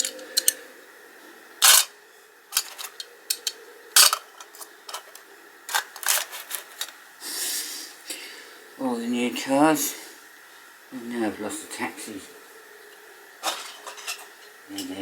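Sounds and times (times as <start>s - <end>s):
toy cars clicking and clacking: 0.0s - 0.6s, 1.6s - 1.9s, 2.5s - 7.0s.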